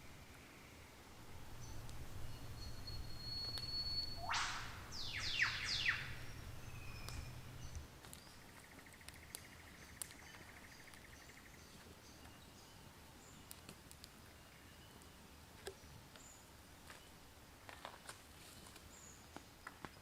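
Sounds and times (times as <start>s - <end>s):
faint high chirps: 0.0s - 7.8s.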